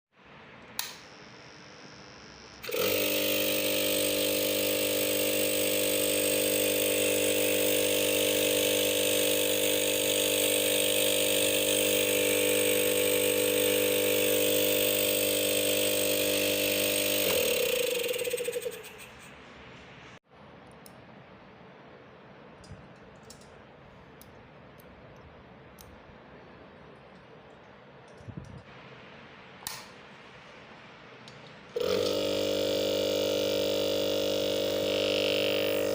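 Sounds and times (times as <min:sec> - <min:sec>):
refrigerator compressor humming: 0:31.7 - 0:35.9.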